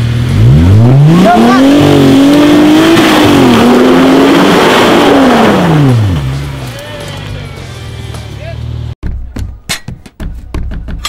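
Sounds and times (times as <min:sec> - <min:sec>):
engine revving hard: 0:00.0 - 0:06.4.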